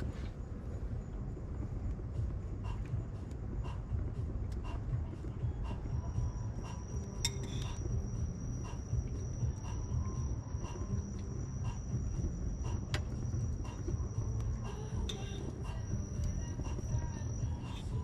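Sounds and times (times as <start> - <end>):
bonfire burning: 0.0 - 18.0
crickets chirping: 0.0 - 18.0.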